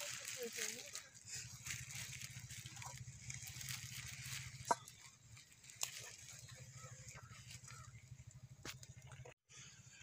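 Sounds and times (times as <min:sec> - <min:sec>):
frying sizzle and crackle: 0:00.0 - 0:07.8.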